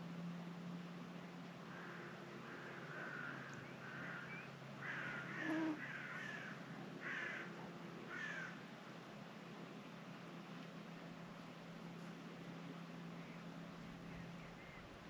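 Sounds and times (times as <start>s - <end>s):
bird rough calls: 1.7s - 7.5s, 8.1s - 8.6s.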